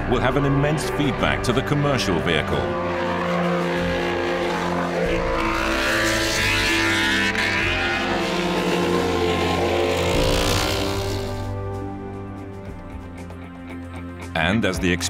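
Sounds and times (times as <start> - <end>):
background music: 0.0 - 15.0
motorcycle engine at high revs: 2.3 - 11.7.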